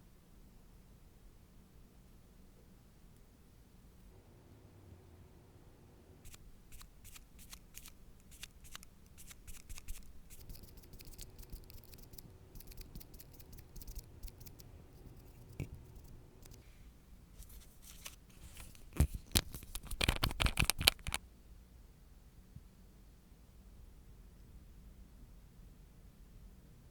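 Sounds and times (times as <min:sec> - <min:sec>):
rapid clicking and scraping: 0:06.3 - 0:16.6, 0:17.4 - 0:21.2.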